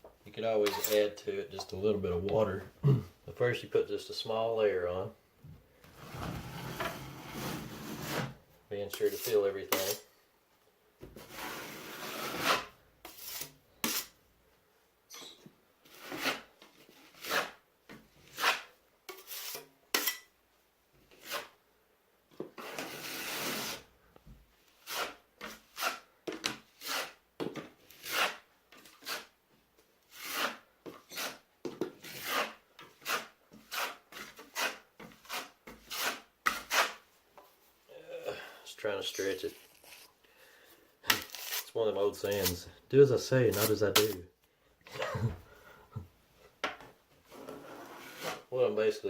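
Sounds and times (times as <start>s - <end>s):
drywall knife scraping compound: 0.6s - 1.2s, 5.8s - 10.1s, 11.0s - 14.2s, 15.1s - 20.3s, 21.0s - 21.6s, 22.4s - 23.9s, 24.6s - 29.4s, 30.0s - 37.1s, 39.1s - 44.3s, 47.2s - 48.5s.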